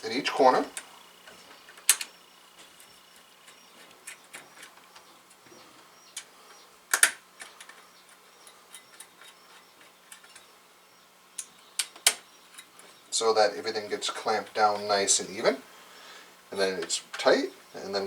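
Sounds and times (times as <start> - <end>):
small metallic screw clicks: 0.7 - 2.2.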